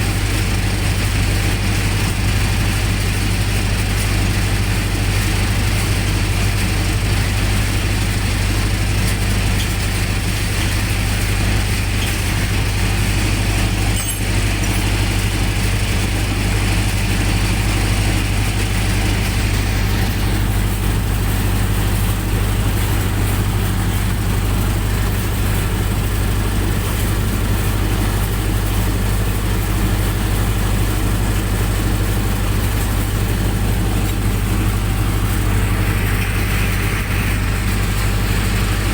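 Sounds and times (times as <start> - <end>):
generator engine humming: 0.0 - 38.9.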